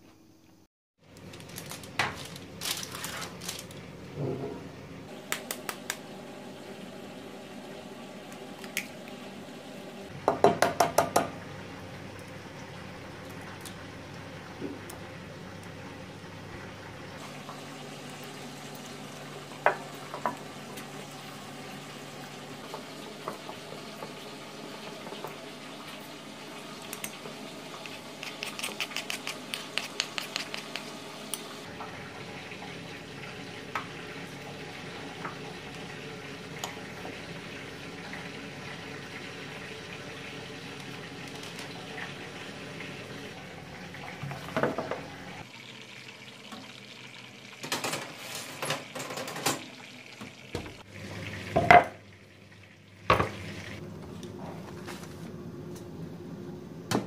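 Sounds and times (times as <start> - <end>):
food sizzling in a pan: 17.2 - 43.4.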